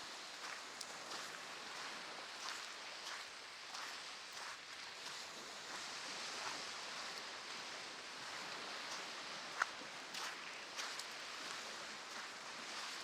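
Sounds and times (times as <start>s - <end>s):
footsteps crunching in sand: 0.1s - 6.7s, 9.4s - 13.0s.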